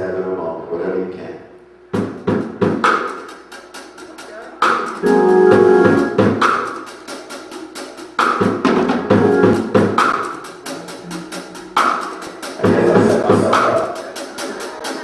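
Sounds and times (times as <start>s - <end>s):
drum kit beat: 1.9s - 15.0s
held low notes: 12.5s - 14.0s.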